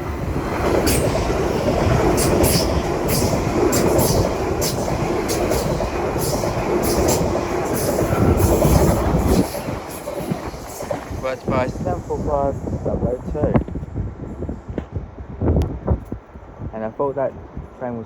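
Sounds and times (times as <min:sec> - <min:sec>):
train wheels rushing on rails: 0:00.0 - 0:13.8.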